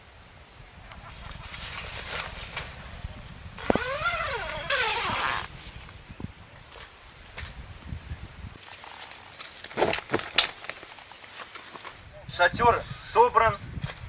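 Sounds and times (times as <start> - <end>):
tent fabric rustling: 1.3 - 2.9, 3.6 - 5.8, 8.6 - 12.0
loud rasping pulls: 3.6 - 5.5.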